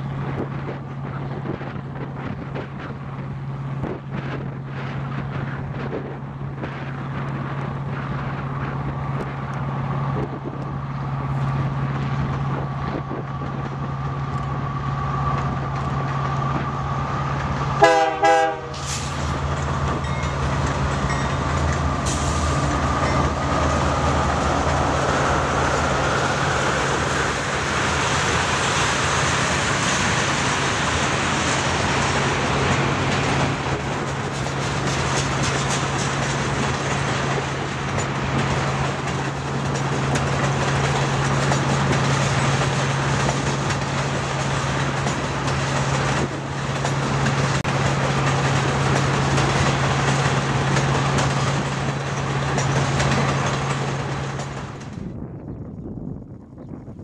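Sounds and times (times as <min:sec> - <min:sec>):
freight train engine drone: 0:00.0 - 0:57.0
rolling rumble of train cars: 0:00.0 - 0:57.0
train horn blast: 0:17.8 - 0:19.1.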